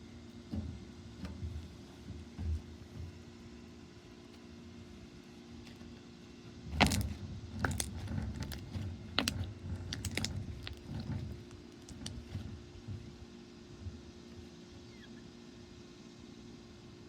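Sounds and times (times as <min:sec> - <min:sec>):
slime squishing: 0:06.7 - 0:12.6.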